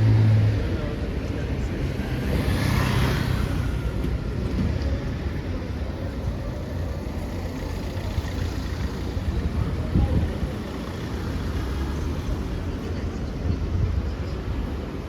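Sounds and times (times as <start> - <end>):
traffic engines humming: 0.0 - 15.0
car passing close by: 1.9 - 4.3.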